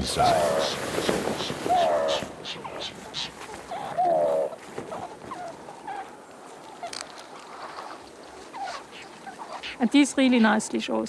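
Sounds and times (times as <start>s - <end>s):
wavering falling animal call: 0.0s - 4.6s.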